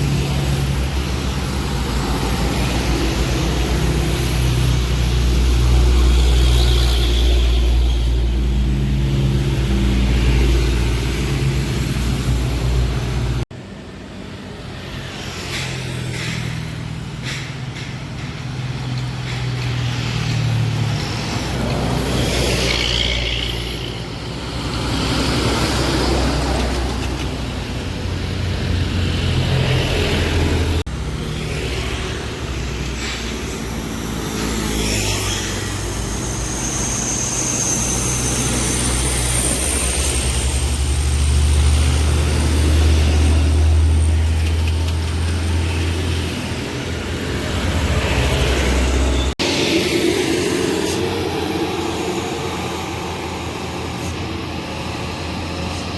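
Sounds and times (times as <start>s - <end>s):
diesel trucks climbing uphill: 0.0s - 55.9s
traffic noise: 0.0s - 55.9s.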